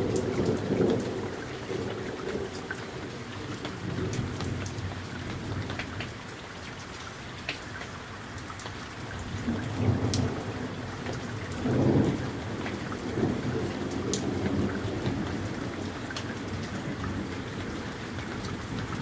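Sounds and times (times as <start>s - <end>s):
low thunder rumbling: 0.0s - 6.0s, 9.2s - 19.0s
steady rain falling: 0.0s - 19.0s
sharp raindrop hits: 8.5s - 19.0s.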